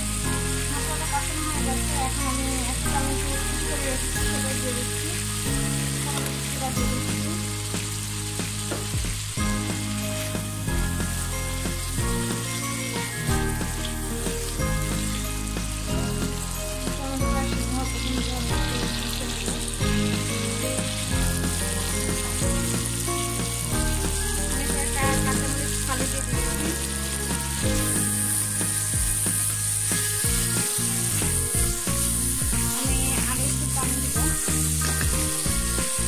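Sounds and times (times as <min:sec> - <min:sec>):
background music with bass line: 0:00.0 - 0:36.0
masala sizzling in hot oil: 0:00.0 - 0:36.0
spatula stirring: 0:20.9 - 0:36.0.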